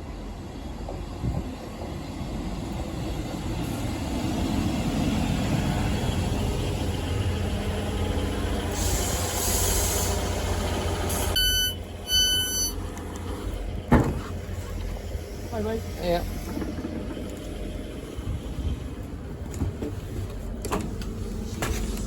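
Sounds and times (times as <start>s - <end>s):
diesel train running: 0.0s - 22.0s
air hiss: 8.7s - 10.4s
short electronic beeps: 11.4s - 12.8s.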